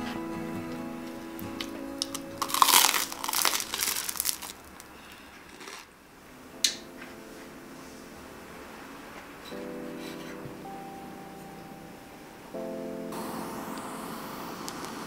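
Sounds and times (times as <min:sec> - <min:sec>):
crunchy bread being chewed: 0:02.0 - 0:05.9.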